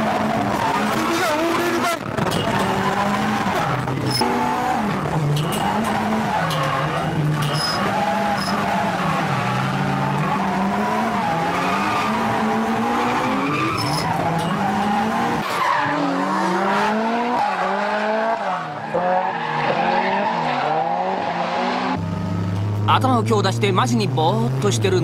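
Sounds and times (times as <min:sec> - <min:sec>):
tyres squealing: 0:00.0 - 0:16.2
car engine revving hard: 0:00.0 - 0:22.8.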